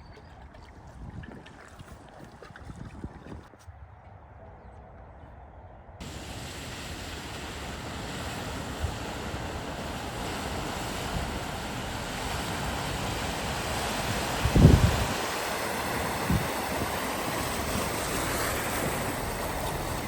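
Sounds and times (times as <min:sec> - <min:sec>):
steady rushing noise: 0:06.0 - 0:20.0.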